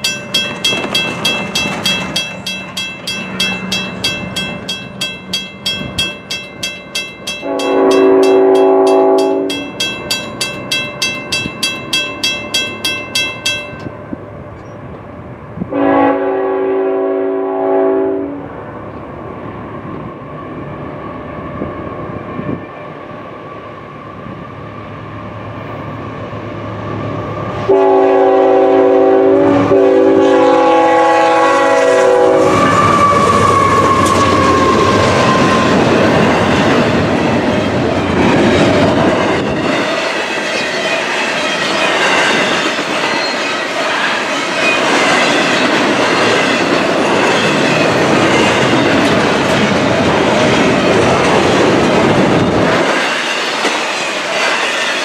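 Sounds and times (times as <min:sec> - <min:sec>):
train cars clacking over rail joints: 0:00.0 - 0:15.0
freight train rumbling: 0:00.0 - 0:55.0
locomotive horn: 0:07.4 - 0:09.6, 0:15.7 - 0:18.5, 0:27.7 - 0:34.8.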